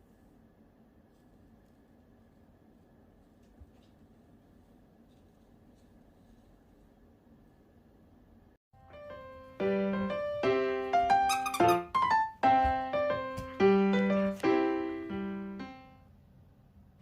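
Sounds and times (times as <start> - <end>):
piano chords: 8.8 - 16.1.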